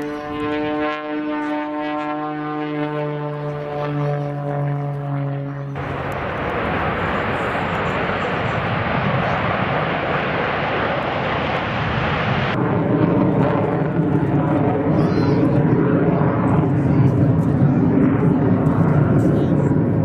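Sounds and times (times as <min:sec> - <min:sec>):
droning hum: 0:00.0 - 0:13.0
jet engines roaring: 0:00.0 - 0:20.0.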